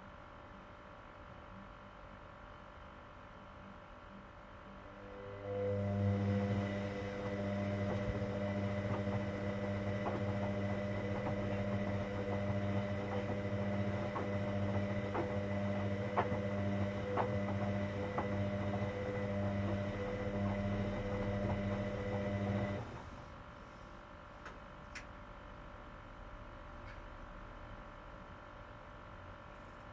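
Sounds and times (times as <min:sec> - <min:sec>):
washing machine drain pump humming: 0:04.9 - 0:23.6.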